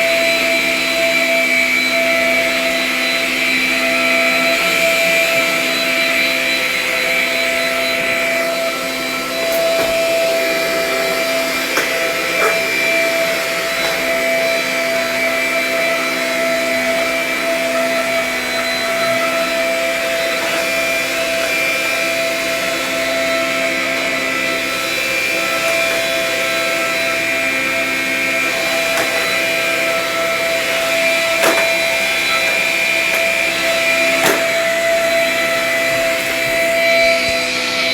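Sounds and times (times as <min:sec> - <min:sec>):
vacuum cleaner running: 0:00.0 - 0:37.9.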